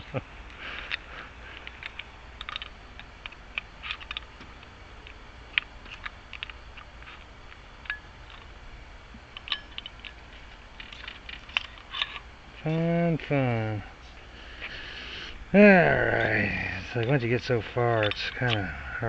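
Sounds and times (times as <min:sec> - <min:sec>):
lock parts clicking and tapping: 0:00.8 - 0:08.5, 0:09.3 - 0:12.3, 0:15.9 - 0:18.7.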